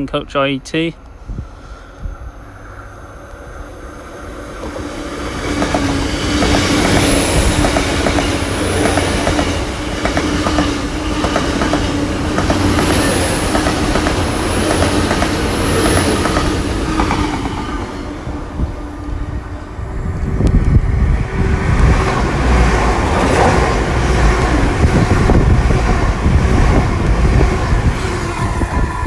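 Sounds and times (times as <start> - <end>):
passenger train passing: 0.0 - 29.0
wheels clickety-clack over rail joints: 4.5 - 18.2, 20.2 - 29.0.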